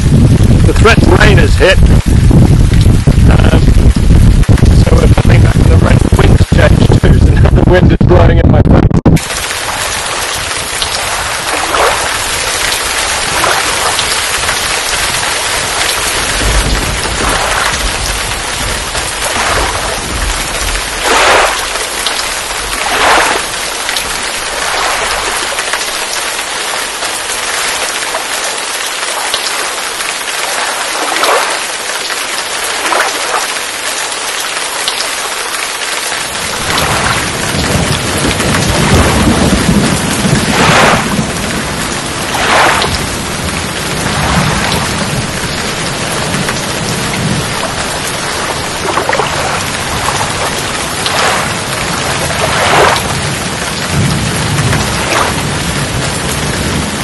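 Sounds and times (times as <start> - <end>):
rain hissing on water: 0.0 - 7.8, 9.2 - 57.0
wind buffeting microphone: 0.0 - 28.1, 36.2 - 57.0
paddle splash: 9.2 - 41.3, 42.2 - 53.7, 54.7 - 55.4.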